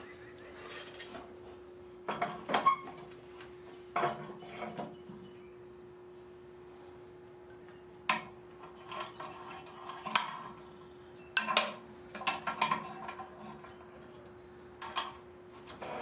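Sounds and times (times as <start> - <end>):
steady faint hum: 0.0 - 16.0
metal clanks and clinks: 3.9 - 5.5, 8.0 - 16.0.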